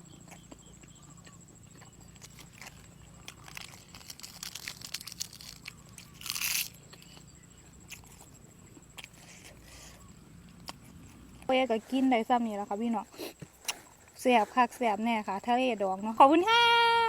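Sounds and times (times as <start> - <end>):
food crunching: 0.0 - 11.5, 13.4 - 14.1
wet chewing clicks: 0.0 - 12.0, 13.1 - 14.2.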